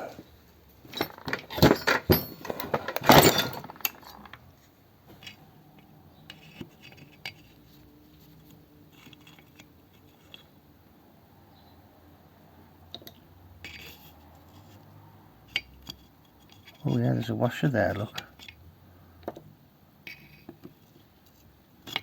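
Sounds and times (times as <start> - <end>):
metal tools clinking and rattling: 0.8 - 4.4.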